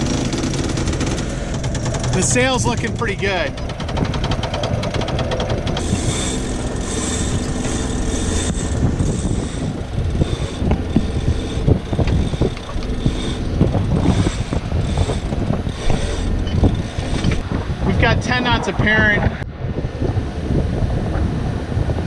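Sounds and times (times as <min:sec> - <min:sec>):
boat engine rumble: 0:00.0 - 0:22.0
wind and water rushing: 0:08.6 - 0:22.0.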